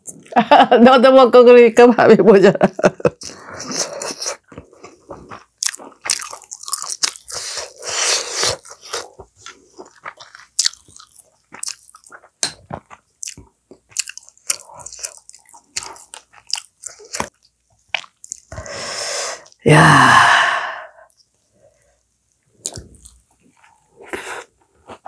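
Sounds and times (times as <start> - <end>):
person chewing food: 3.0 - 18.8, 21.0 - 25.0
wet mouth smacks and clicks: 10.6 - 14.6.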